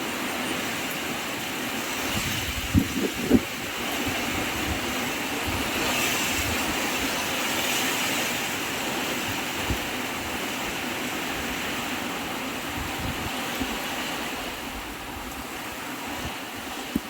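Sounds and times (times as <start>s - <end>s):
strong wind rushing: 1.9s - 8.3s, 11.3s - 17.0s
wind buffeting microphone: 1.9s - 17.0s.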